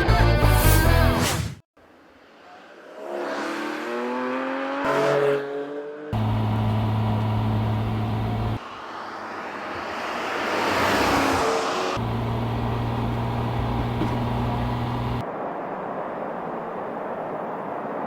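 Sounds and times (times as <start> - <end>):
road noise: 1.8 - 18.0
car engine accelerating: 5.9 - 8.6, 10.7 - 15.2.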